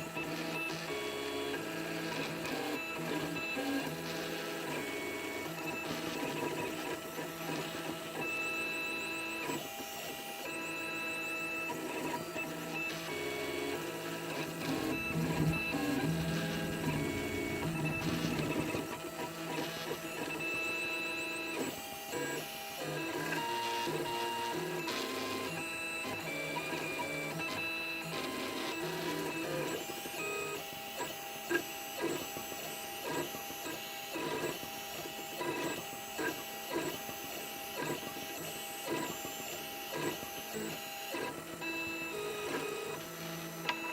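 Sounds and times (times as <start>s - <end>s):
stepper motors whining: 12.6s - 19.4s.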